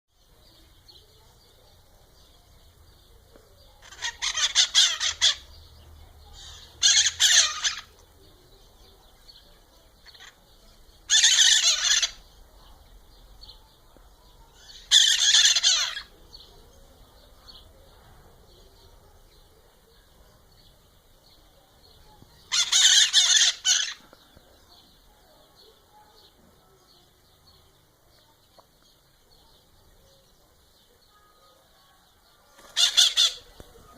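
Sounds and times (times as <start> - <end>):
harsh bird calls: 2.1 - 13.7, 14.5 - 19.5, 20.5 - 28.2, 32.2 - 33.9.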